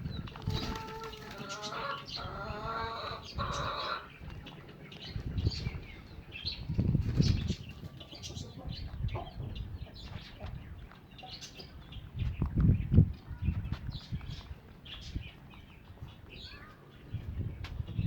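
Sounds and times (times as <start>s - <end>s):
bird wings flapping: 0.4s - 1.6s.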